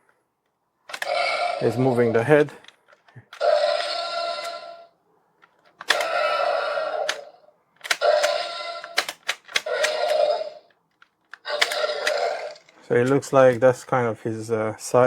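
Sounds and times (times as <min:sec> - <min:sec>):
toy jaw mechanism clicks: 0:00.9 - 0:01.8, 0:02.6 - 0:04.7, 0:05.4 - 0:13.2
toy dinosaur roar from speaker: 0:01.0 - 0:02.2, 0:03.4 - 0:04.9, 0:05.9 - 0:07.4, 0:08.0 - 0:09.0, 0:09.6 - 0:10.7, 0:11.4 - 0:12.7.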